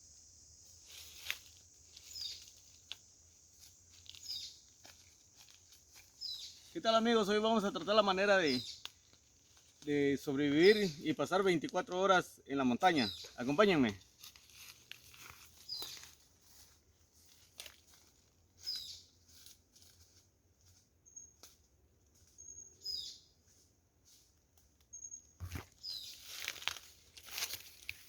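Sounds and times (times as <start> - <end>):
rustles and crunches: 0.8 - 6.8, 8.6 - 10.0, 13.0 - 20.8, 25.4 - 28.0
birds chirping: 1.9 - 2.7, 4.0 - 4.8, 5.8 - 9.1, 9.8 - 14.0, 18.6 - 19.1, 22.4 - 23.5.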